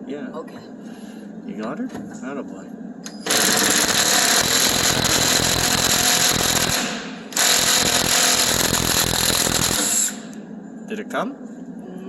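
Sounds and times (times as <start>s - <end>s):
impact wrench hammering: 3.2s - 10.4s.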